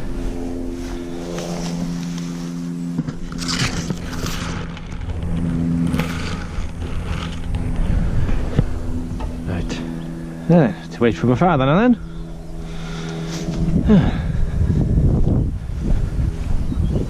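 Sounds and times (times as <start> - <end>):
scraping and handling noises: 0.2 - 7.8.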